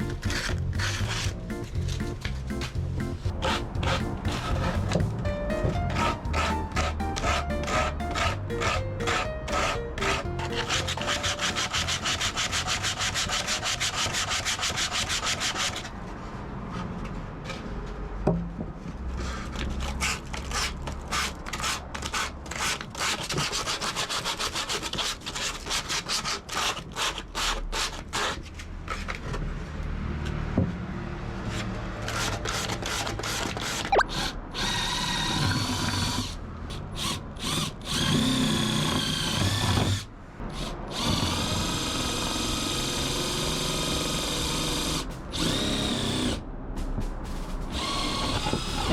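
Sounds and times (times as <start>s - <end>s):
drill whirring: 0.0s - 2.3s, 2.9s - 5.1s, 5.8s - 15.9s, 32.1s - 46.4s, 47.7s - 48.9s
hand rasping wood: 0.0s - 15.9s, 19.2s - 28.5s.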